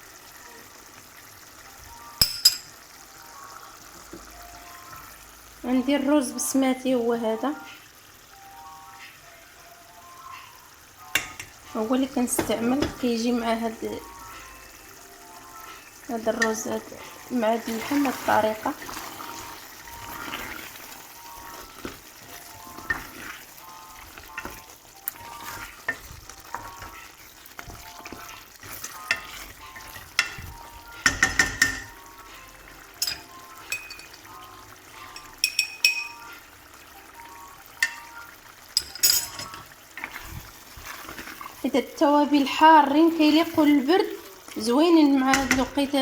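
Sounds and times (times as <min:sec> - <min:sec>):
food frying: 0:00.0 - 0:46.0
spoon clinking against metal pot: 0:02.2 - 0:02.8, 0:11.1 - 0:11.6, 0:28.9 - 0:30.4, 0:31.0 - 0:31.9, 0:33.0 - 0:34.2, 0:35.0 - 0:36.4, 0:37.8 - 0:38.1, 0:38.7 - 0:39.7, 0:45.3 - 0:45.8.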